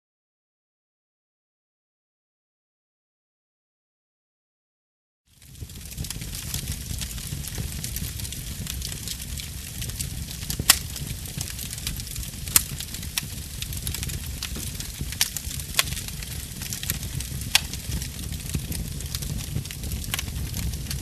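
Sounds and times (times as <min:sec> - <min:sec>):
fire crackling and popping: 0:05.3 - 0:21.0.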